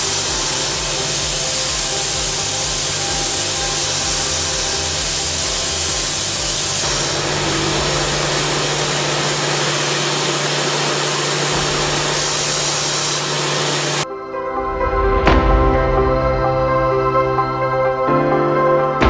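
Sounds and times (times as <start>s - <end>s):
milling machine hiss: 0.0s - 14.0s.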